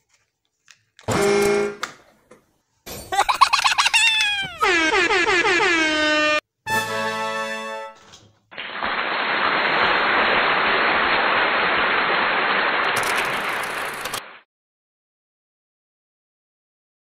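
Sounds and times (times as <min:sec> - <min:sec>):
horn-like tone: 0:01.1 - 0:01.8.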